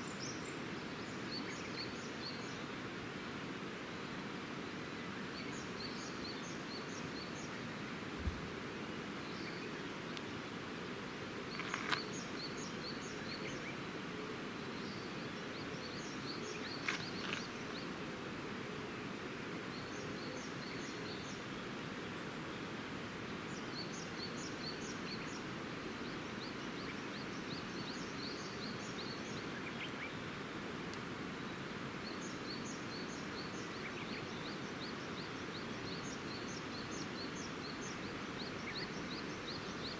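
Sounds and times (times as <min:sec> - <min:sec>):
steady background hiss: 0:00.0 - 0:39.9
songbird chirping: 0:04.9 - 0:18.1, 0:18.8 - 0:39.9
dull low thump: 0:08.2 - 0:08.5
campfire popping: 0:11.4 - 0:12.7, 0:16.6 - 0:17.9.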